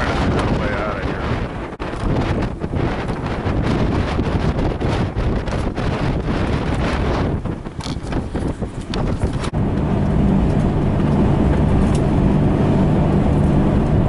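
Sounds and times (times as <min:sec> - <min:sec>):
wind buffeting microphone: 0:00.0 - 0:14.0
road noise: 0:06.6 - 0:14.0
car engine humming: 0:09.2 - 0:14.0.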